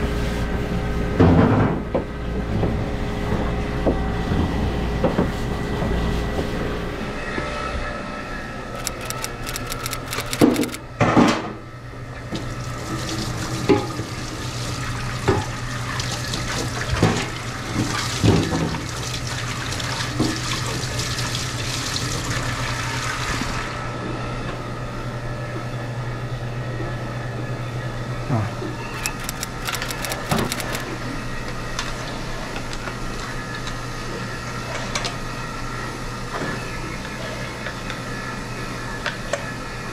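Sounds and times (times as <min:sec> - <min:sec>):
low machine hum: 0:00.0 - 0:39.9
faucet water running into sink: 0:12.4 - 0:23.6.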